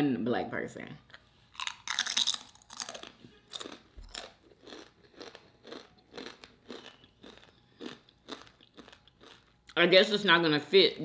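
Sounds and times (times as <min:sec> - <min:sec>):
person chewing crunchy chip: 0:01.5 - 0:09.8.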